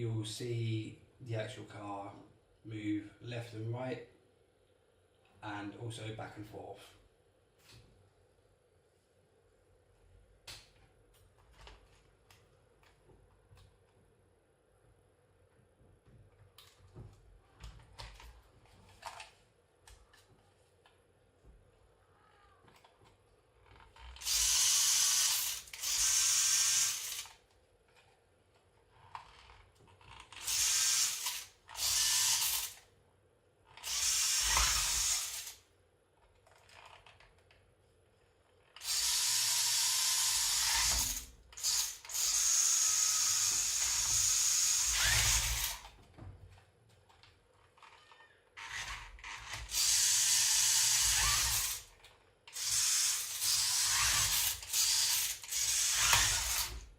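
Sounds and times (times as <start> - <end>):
electric motor and gearbox whirring: 23.6 - 27.4, 29.0 - 32.8, 33.7 - 35.6, 38.7 - 46.0, 47.7 - 56.9.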